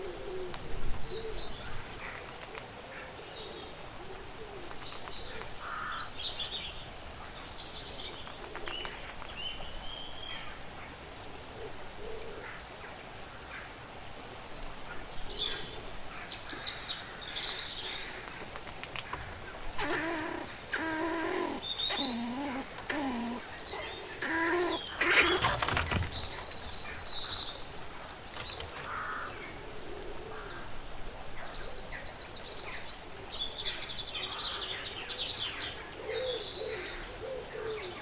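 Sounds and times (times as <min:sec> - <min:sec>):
songbirds singing: 0:00.0 - 0:38.0
short low bird calls: 0:19.0 - 0:29.4.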